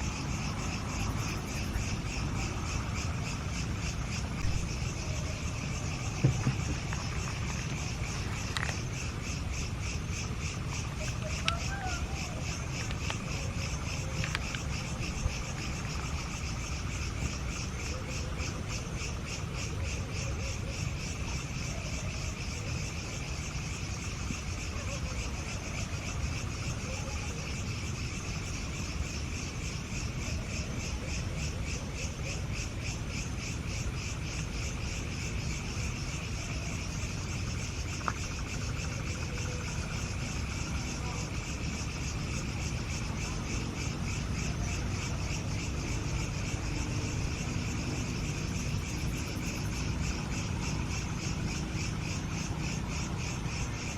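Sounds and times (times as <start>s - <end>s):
insect chorus trilling: 0.0s - 53.9s
faint clicks: 12.7s - 14.7s.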